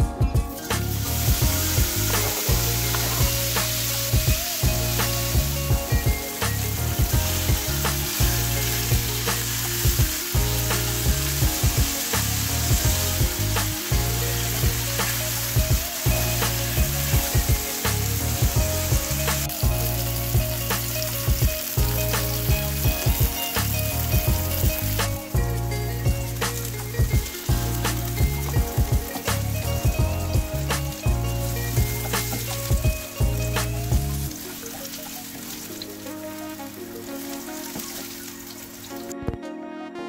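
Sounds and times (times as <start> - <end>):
sausage sizzling in oil: 0.0 - 39.2.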